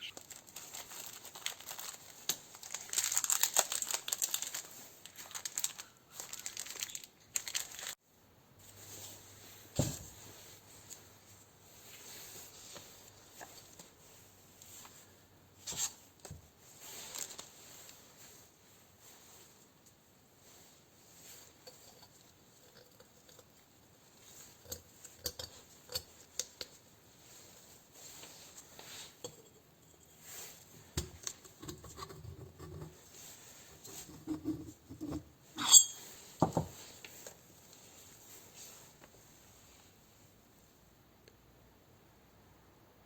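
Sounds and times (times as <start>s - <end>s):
metal tools clicking and clinking: 35.6s - 36.0s.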